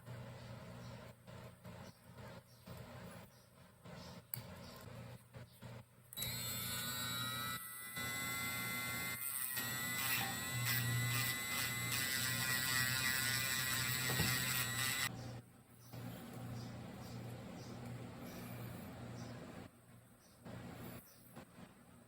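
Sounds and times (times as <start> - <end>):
small electric motor whining: 6.2 - 15.1.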